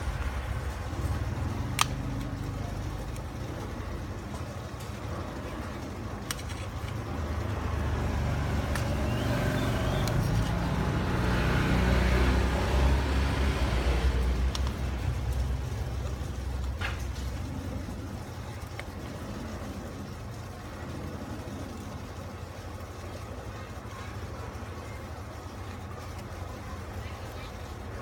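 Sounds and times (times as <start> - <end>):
passing road vehicle rumble: 6.9 - 16.5.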